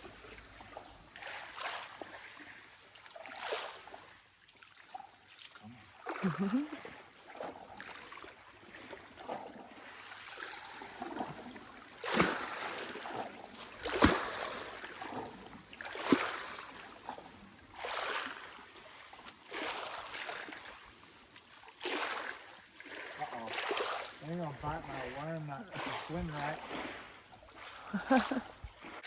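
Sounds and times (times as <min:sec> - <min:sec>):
paddle swish and splash: 0:00.0 - 0:29.0.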